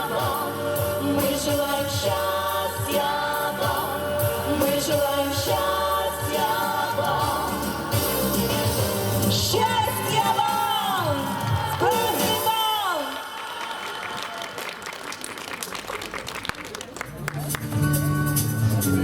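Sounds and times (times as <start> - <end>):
backing track: 0.0 - 13.1
many voices singing: 0.0 - 14.0.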